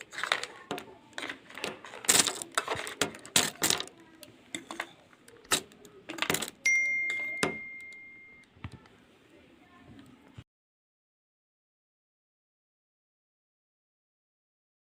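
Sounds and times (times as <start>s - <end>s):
metallic clinks and knocks: 4.5s - 8.4s
ringing tone: 6.7s - 8.5s.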